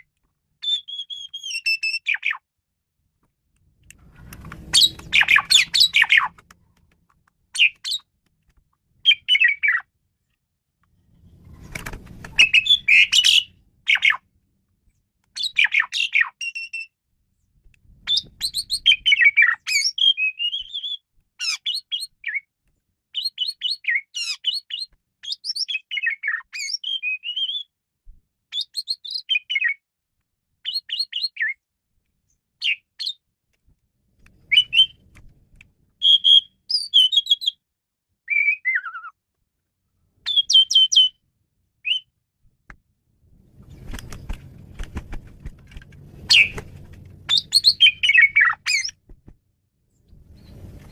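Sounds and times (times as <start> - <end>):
starling singing chirps and whistles: 0.6 - 2.4, 4.7 - 6.3, 9.0 - 9.8, 12.4 - 14.2, 15.4 - 16.9, 18.1 - 22.5, 23.2 - 27.7, 28.5 - 29.8, 30.6 - 31.6, 34.5 - 35.0, 36.0 - 37.6, 38.3 - 39.1, 40.2 - 41.2, 41.8 - 42.1, 46.3 - 46.6, 47.3 - 49.0
faint low rumble: 49.2 - 50.9.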